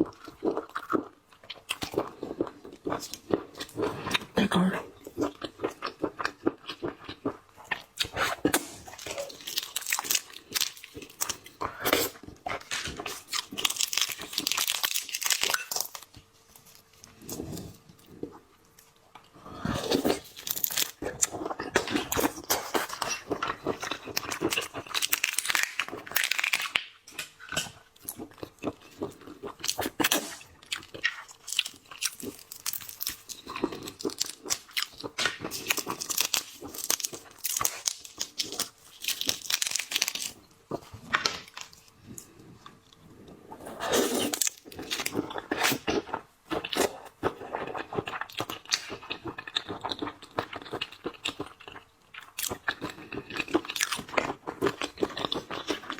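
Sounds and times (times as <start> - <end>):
tearing and chewing: 5.1 - 18.9, 19.7 - 43.0, 43.7 - 55.9
shells crunching and cracking: 8.6 - 11.5, 12.6 - 16.1, 20.1 - 21.1, 21.8 - 27.7, 29.6 - 40.4.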